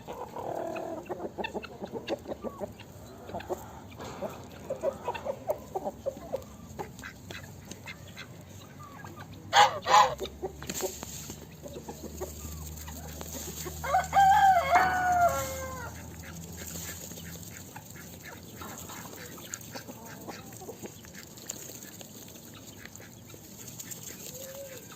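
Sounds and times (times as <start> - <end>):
rooster crowing: 13.8 - 16.0.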